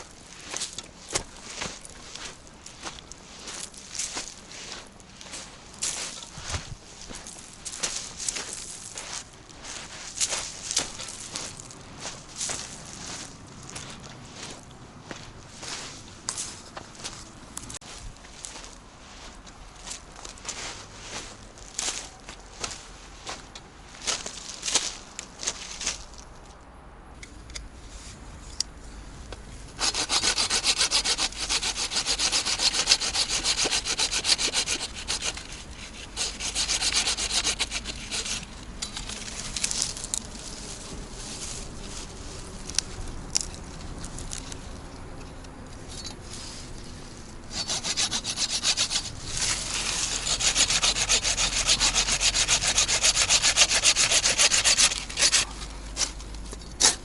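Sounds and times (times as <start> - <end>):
hand saw cutting wood: 29.8 - 40.2, 47.5 - 56.2.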